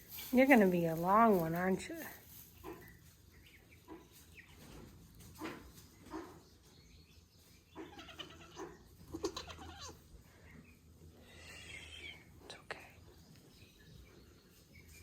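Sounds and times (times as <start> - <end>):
goat soft bleats and grunts: 7.8 - 10.1, 11.2 - 12.3.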